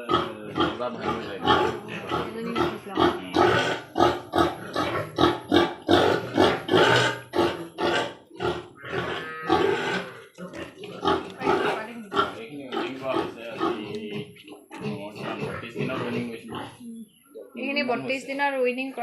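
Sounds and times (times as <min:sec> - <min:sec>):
pigs grunting and squealing: 0:00.0 - 0:16.9.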